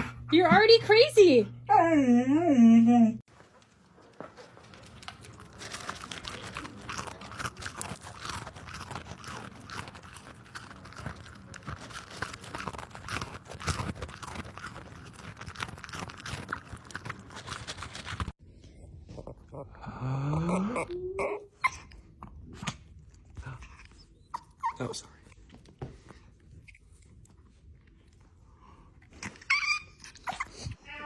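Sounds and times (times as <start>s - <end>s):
animal chewing crunchy food: 3.3s - 19.4s.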